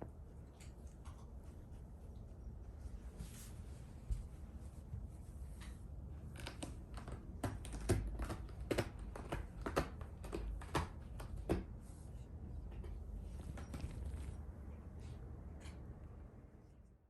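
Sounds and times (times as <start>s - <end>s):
light clicks and taps: 0.0s - 2.4s
low steady hum: 0.0s - 17.0s.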